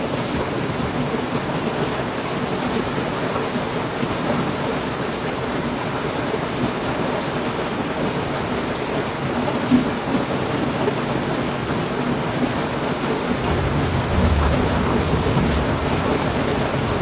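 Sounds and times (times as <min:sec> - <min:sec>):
heavy rain: 0:00.0 - 0:17.0
thunder rumbling: 0:13.3 - 0:17.0.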